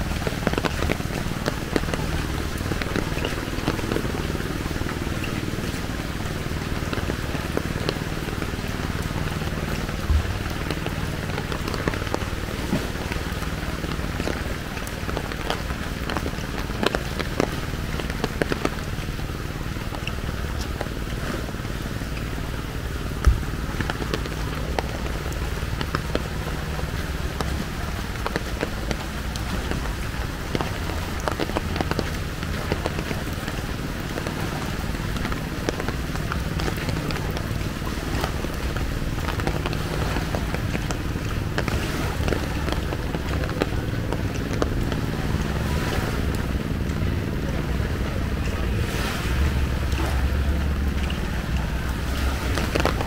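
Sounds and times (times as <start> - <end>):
raindrops ticking: 0.0 - 53.0
wind rumble on microphone: 0.0 - 53.0.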